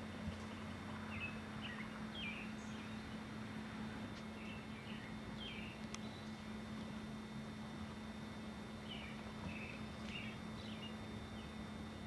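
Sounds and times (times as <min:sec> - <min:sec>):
low hum: 0:00.0 - 0:12.0
birds chirping: 0:00.4 - 0:03.3, 0:04.3 - 0:06.4, 0:08.8 - 0:11.6.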